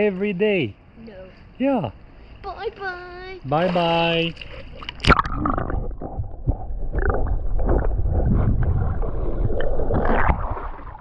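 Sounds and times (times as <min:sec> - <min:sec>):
pool water sloshing and splashing: 0:03.4 - 0:11.0.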